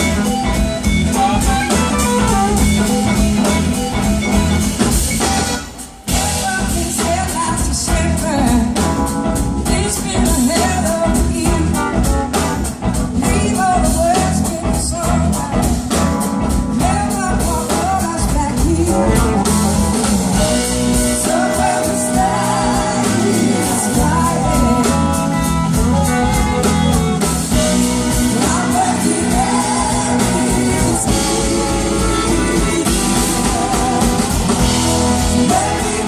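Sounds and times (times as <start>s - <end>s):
bass guitar: 0.0s - 36.0s
drums: 0.0s - 36.0s
electric guitar: 0.0s - 36.0s
person singing: 16.8s - 36.0s.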